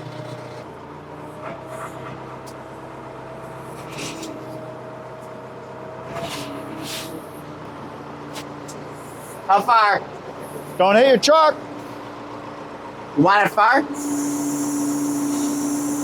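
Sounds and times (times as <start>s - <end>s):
backhoe engine running: 0.0s - 16.0s
short hissing sounds: 13.9s - 16.0s.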